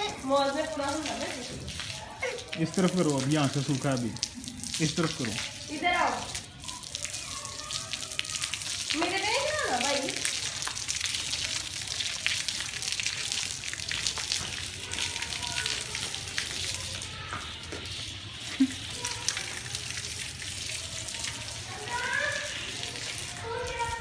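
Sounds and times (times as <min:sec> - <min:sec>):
water splashing and running: 0:00.0 - 0:24.0.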